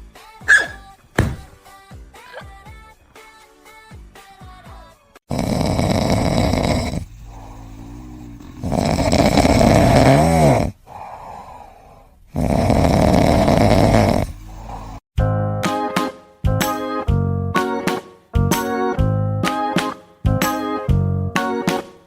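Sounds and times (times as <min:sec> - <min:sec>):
whistling breaths: 0:00.5 - 0:00.9
pet snoring loudly: 0:05.3 - 0:15.0.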